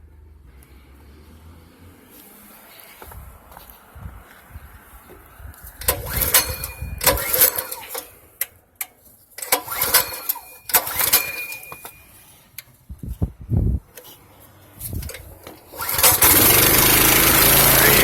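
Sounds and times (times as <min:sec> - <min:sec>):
small engine pull-start cranking: 0:05.8 - 0:08.2, 0:09.4 - 0:12.0, 0:14.9 - 0:18.0.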